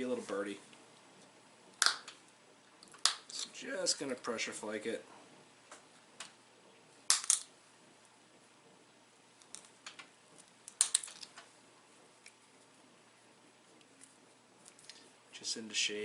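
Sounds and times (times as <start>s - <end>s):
stone flakes snapping off: 7.1s - 7.5s, 10.7s - 11.3s.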